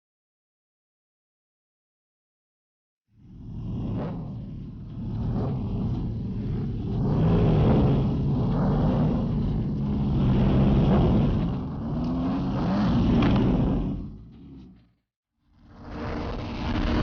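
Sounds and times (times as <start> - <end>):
motorcycle engines revving: 3.2 - 15.0.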